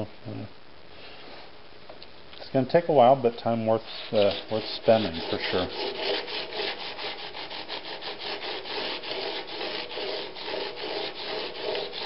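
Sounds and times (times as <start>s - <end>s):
chisel scraping on abrasive paper: 3.8s - 12.0s.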